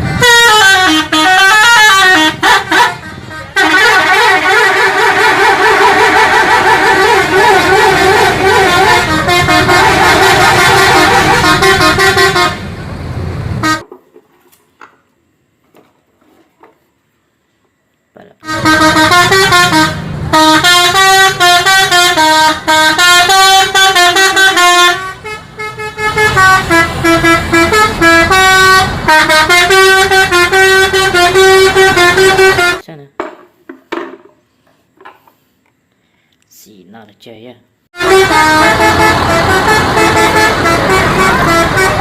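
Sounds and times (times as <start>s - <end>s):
multi-tone bus horn melody: 0.0s - 13.9s, 18.4s - 32.9s, 38.0s - 42.0s.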